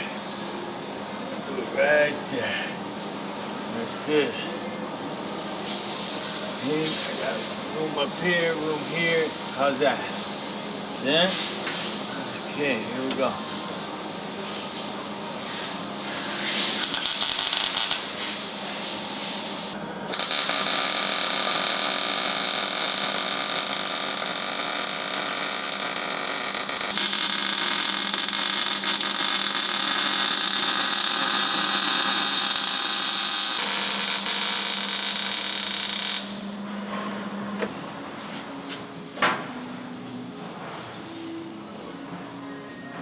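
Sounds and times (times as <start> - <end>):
power tool running: 20.1 - 36.6.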